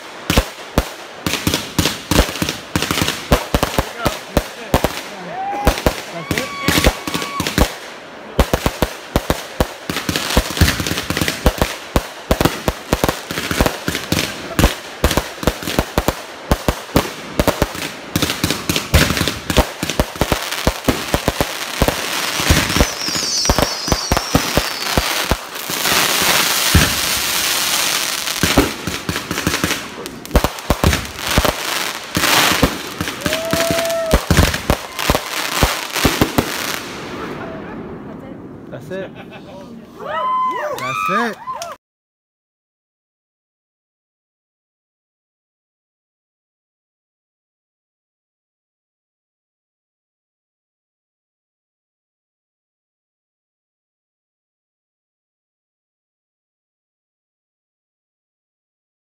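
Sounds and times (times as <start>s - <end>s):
fireworks popping and crackling: 0.0s - 37.8s.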